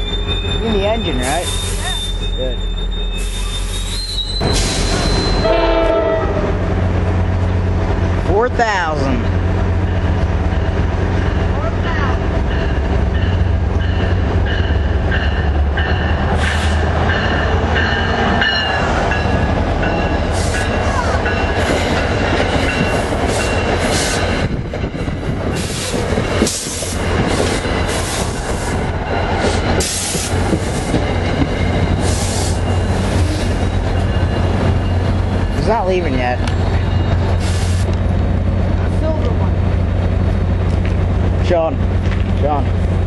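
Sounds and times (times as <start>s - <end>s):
diesel locomotive engine rumble: 0.0s - 43.0s.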